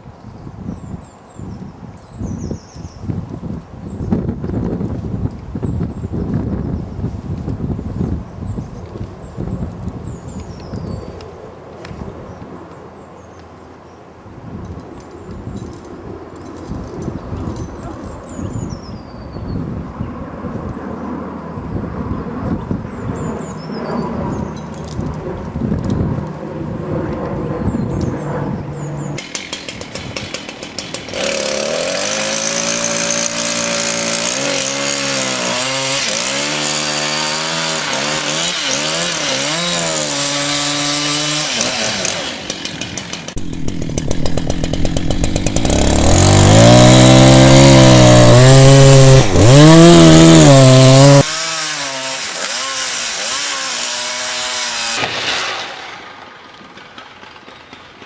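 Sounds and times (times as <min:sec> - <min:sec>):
chainsaw cutting wood: 0:29.2 - 0:58.0.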